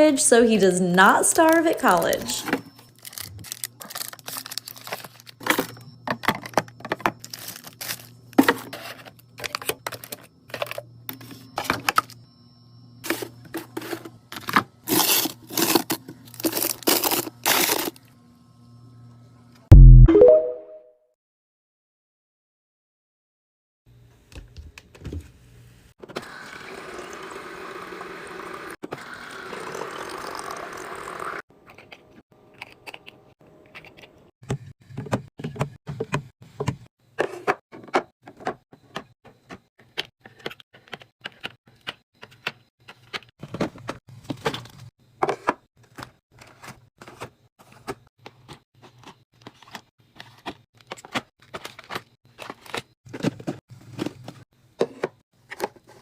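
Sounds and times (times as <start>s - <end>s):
packaging clicking and knocking: 3.0s - 10.8s.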